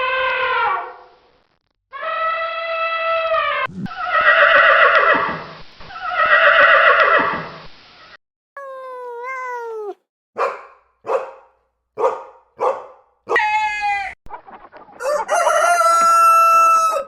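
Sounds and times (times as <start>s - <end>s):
rooster crowing: 13.3s - 14.2s, 15.0s - 17.0s.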